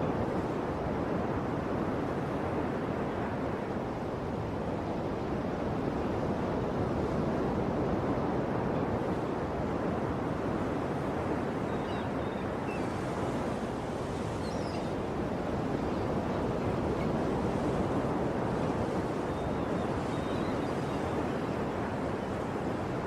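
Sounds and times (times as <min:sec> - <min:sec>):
ocean waves washing on shore: 0:00.0 - 0:23.0
faint high bird chirps: 0:11.7 - 0:13.0, 0:14.4 - 0:15.0, 0:19.3 - 0:21.2.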